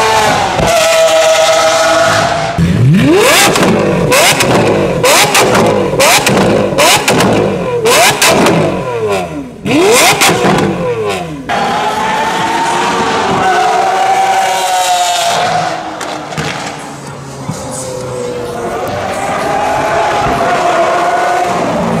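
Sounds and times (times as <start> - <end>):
car engine revving: 0.0 - 22.0
exhaust crackles and pops: 3.4 - 7.5.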